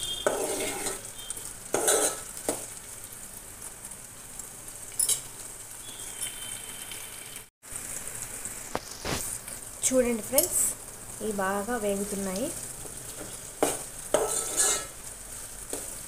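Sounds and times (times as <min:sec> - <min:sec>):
onions sizzling in hot oil: 0:00.0 - 0:16.0
steel spoon scraping pot: 0:00.2 - 0:01.1, 0:01.7 - 0:02.3, 0:14.1 - 0:15.0.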